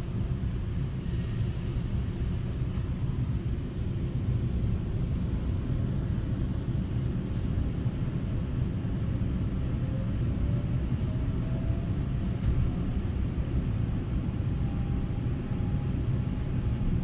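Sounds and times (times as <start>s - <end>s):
electric train low rumble: 0.0s - 17.0s.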